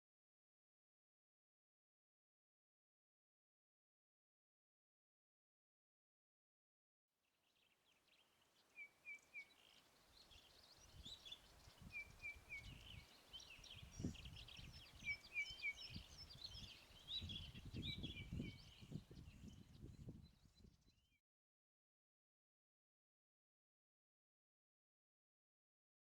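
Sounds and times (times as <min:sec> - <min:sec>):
birdsong chirps and whistles: 0:08.8 - 0:21.1.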